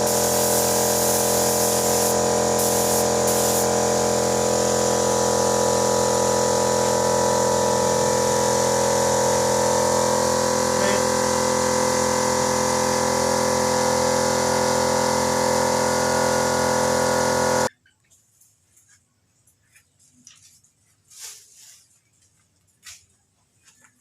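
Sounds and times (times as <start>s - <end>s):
paint spraying compressor running: 0.0s - 17.7s.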